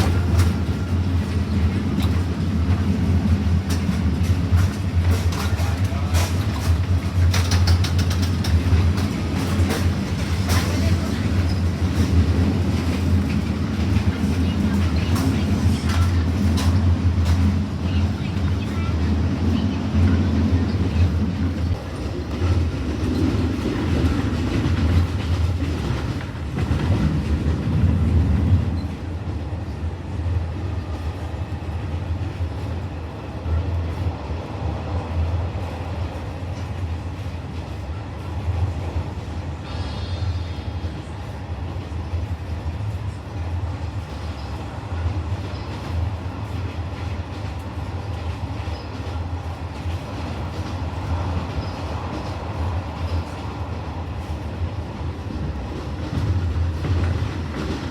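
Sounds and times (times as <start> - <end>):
train wheels rumbling on track: 0.0 - 57.9.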